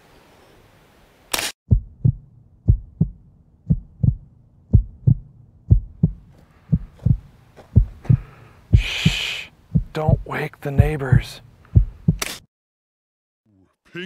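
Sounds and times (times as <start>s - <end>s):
heartbeat thumps: 1.7s - 12.3s
faint hiss: 8.4s - 9.6s.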